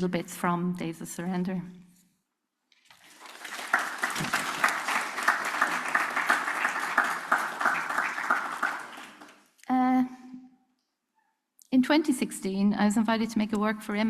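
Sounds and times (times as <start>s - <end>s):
audience applauding: 2.9s - 9.4s.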